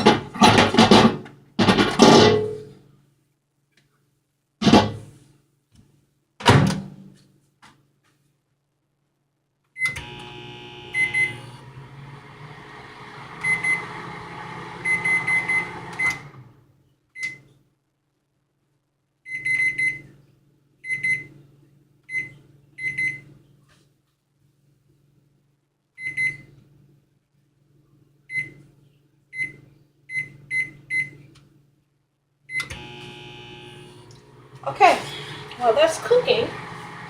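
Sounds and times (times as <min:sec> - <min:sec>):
microwave oven humming: 0:09.8 - 0:16.7, 0:32.5 - 0:37.0.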